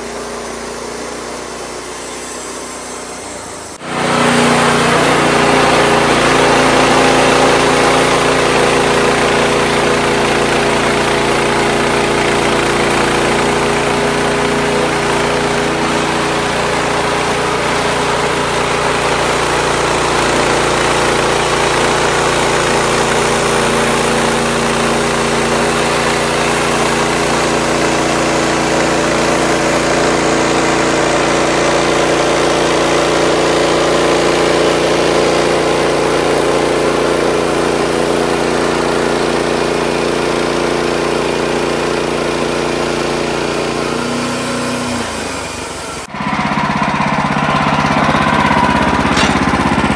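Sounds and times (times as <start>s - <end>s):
sawmill engine running: 0.0s - 49.9s.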